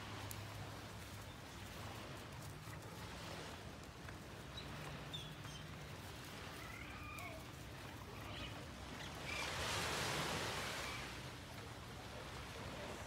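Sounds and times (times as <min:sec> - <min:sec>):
wave washing onto shore: 0:06.0 - 0:13.0.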